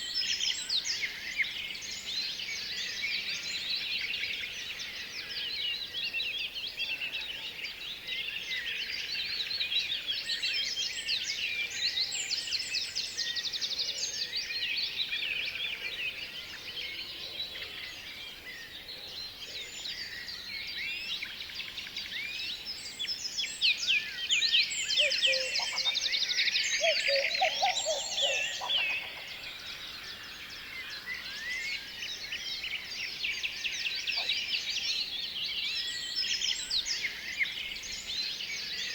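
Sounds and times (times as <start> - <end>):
small birds chirping and trilling: 14.8 - 38.9.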